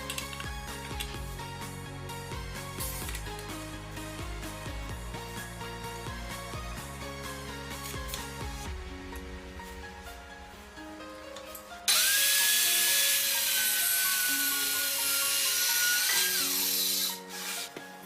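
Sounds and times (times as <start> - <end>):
background music: 0.0 - 18.0
circular saw cutting: 11.9 - 17.8.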